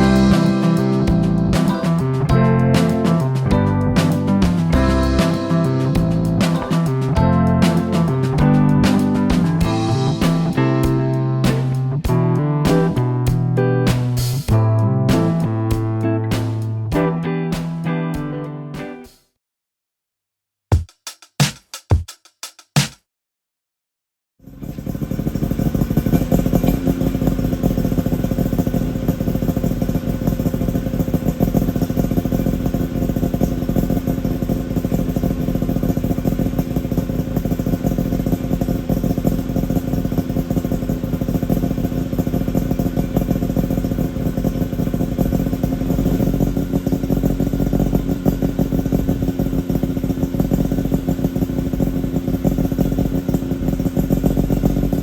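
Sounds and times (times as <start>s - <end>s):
two-stroke engine idling: 0.0s - 12.9s, 24.4s - 55.0s.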